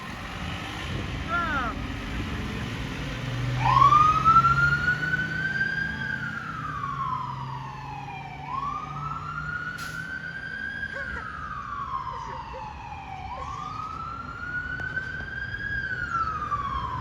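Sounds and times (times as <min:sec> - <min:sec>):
truck engine drone: 0:00.0 - 0:17.0
mechanical siren wailing: 0:03.6 - 0:10.4.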